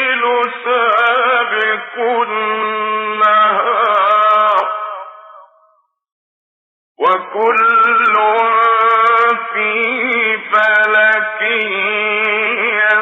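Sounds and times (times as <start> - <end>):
man reciting melodically: 0.0 - 5.6, 7.0 - 13.0.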